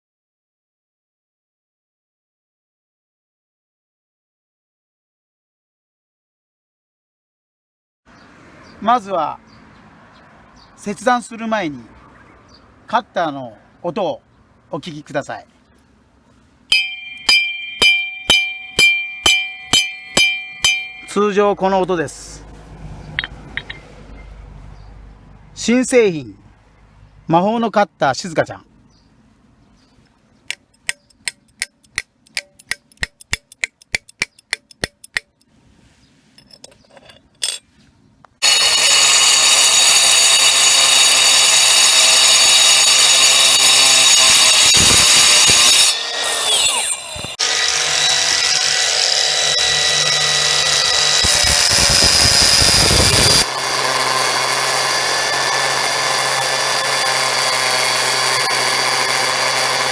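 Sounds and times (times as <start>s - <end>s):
sharp clicks: 30.5s - 35.5s.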